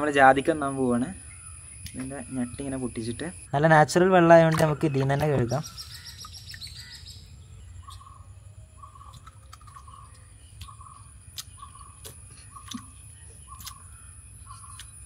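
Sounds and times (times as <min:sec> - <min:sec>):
high insect whine: 0:00.0 - 0:03.7.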